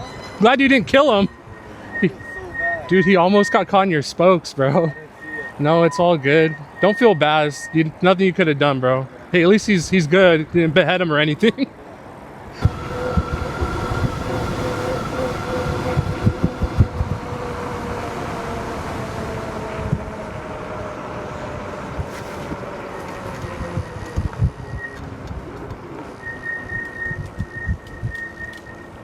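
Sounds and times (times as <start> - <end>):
thin high whistle: 0.0 - 3.7, 4.7 - 7.8, 24.6 - 25.0, 26.2 - 29.0
electric motor whine: 12.6 - 17.8
wind buffeting microphone: 12.6 - 28.6.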